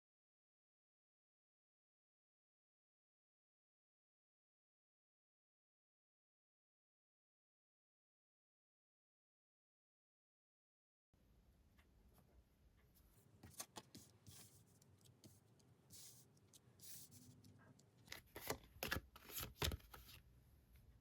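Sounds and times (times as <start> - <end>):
cards rustling and tapping: 13.2 - 20.2.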